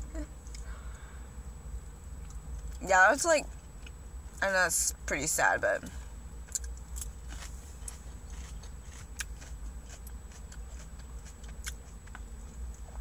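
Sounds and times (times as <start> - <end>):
steady low hum: 0.0 - 13.0
person chewing food: 6.4 - 13.0.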